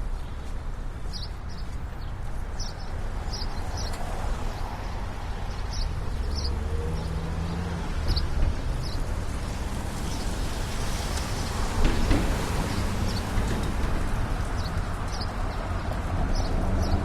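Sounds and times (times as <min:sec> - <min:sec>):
traffic rumble: 0:00.0 - 0:17.0
small birds chirping: 0:00.1 - 0:09.1, 0:14.6 - 0:17.0
passing vehicle engine hum: 0:04.1 - 0:17.0.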